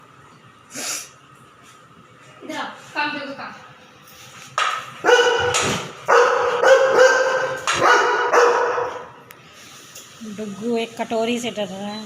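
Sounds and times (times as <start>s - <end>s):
dog barking loudly: 5.0s - 9.2s.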